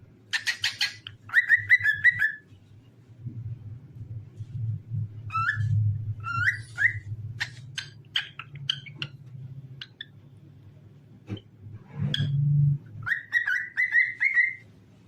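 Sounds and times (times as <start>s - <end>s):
cockatiel whistling and chirping: 0.3s - 2.4s, 5.3s - 9.2s, 13.0s - 14.7s
steady low hum: 1.0s - 13.1s.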